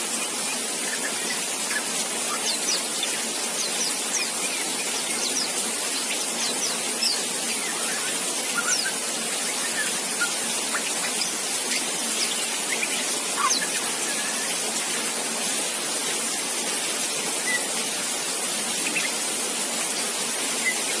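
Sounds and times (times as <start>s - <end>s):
steady hiss: 0.0s - 21.0s
young bird chirping and whistling: 0.3s - 14.6s, 20.6s - 21.0s.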